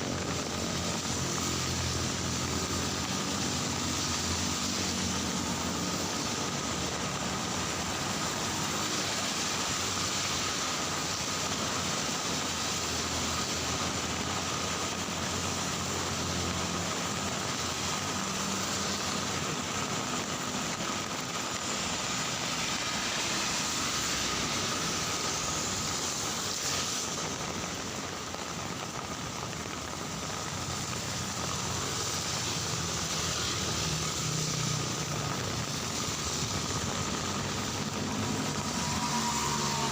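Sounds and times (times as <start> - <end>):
heavy rain falling: 0.0 - 39.9
traffic on wet street: 0.0 - 39.9.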